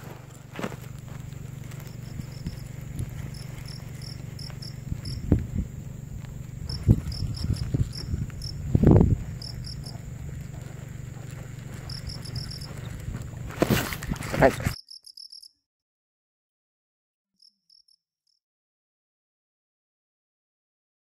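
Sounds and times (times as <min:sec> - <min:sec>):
insects chirping: 0:00.0 - 0:15.6.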